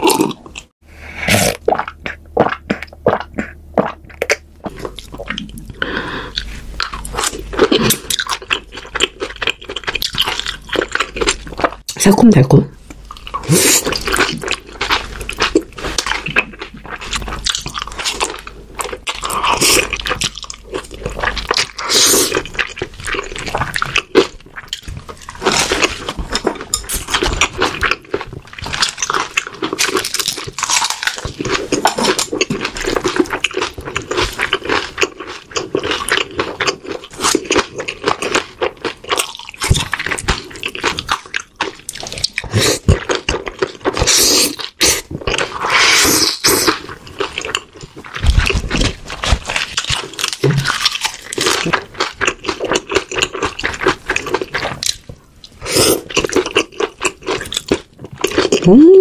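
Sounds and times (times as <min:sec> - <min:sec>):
wet mouth sounds: 0:00.0 - 0:12.1, 0:39.3 - 0:59.0
chewing and crunching food: 0:00.0 - 0:59.0.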